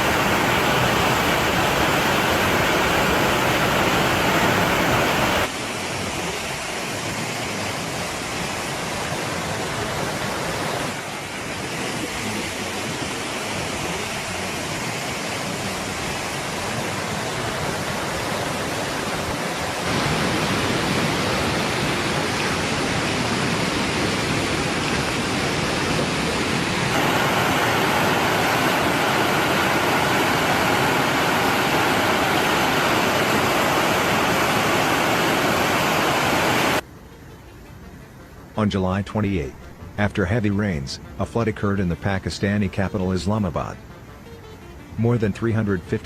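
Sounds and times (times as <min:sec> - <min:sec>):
rushing floodwater: 0:00.0 - 0:36.8.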